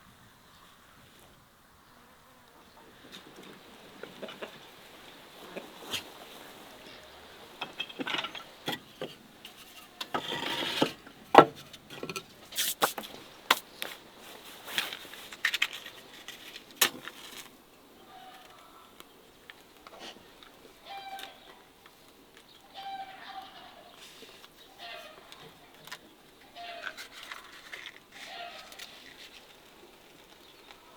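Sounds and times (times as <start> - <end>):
rustling: 3.0 - 18.8, 19.5 - 30.9
faint animal calls: 18.0 - 19.0, 19.9 - 21.8, 22.6 - 25.8, 26.4 - 29.0.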